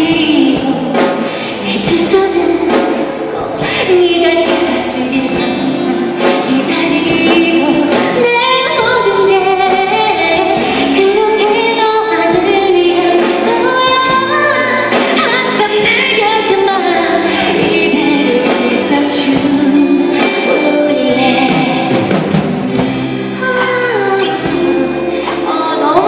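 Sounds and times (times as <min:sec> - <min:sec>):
woman singing a pop ballad: 0:00.0 - 0:26.0
orchestra strings and chords: 0:12.9 - 0:26.0.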